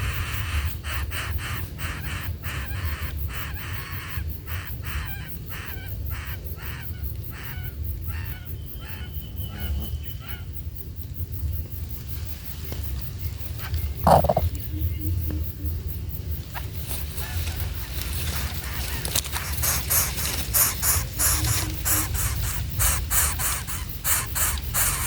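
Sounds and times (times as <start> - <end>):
bird harsh calls: 13.6 - 14.9, 16.6 - 25.0.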